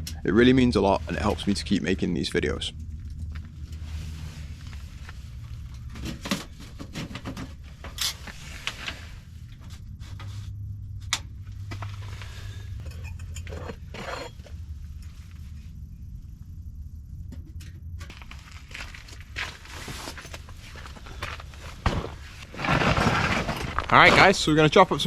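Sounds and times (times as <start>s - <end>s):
low steady rumble: 0.0s - 25.0s.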